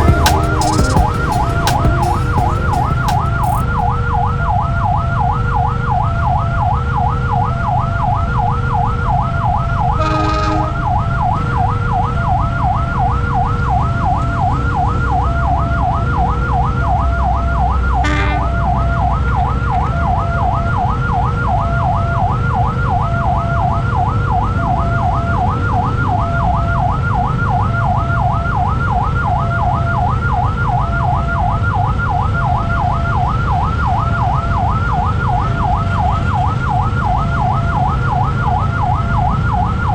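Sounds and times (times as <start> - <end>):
level crossing alarm warble: 0.0 - 4.9
short horn blasts: 10.0 - 10.8.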